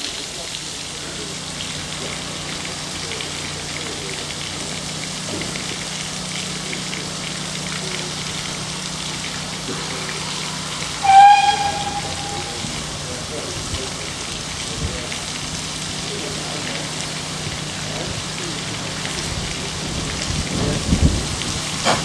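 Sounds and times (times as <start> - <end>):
steady hissing rush: 7.6 - 15.1
train whistle: 10.3 - 13.2
low hum: 10.8 - 13.1.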